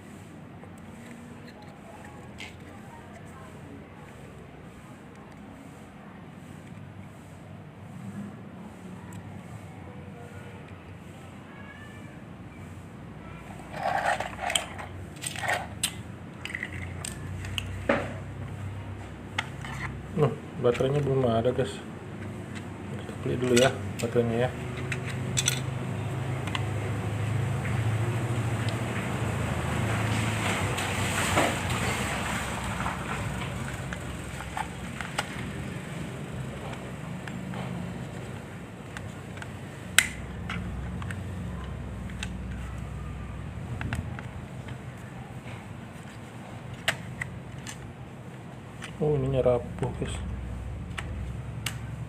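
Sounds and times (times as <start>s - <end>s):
plastic parts clicking and scraping: 0.6s - 3.3s, 13.6s - 26.9s, 32.8s - 43.0s, 43.6s - 50.0s.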